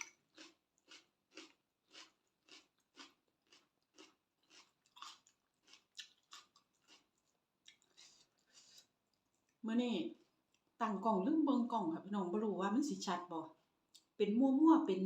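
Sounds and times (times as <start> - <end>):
person chewing food: 0.0 - 9.6, 10.2 - 10.7.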